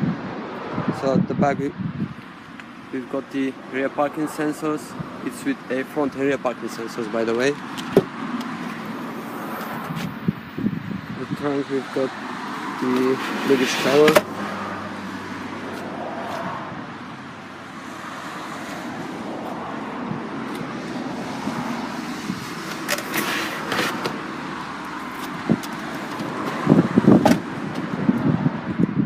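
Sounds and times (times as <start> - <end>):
road traffic hum: 0.0 - 29.0.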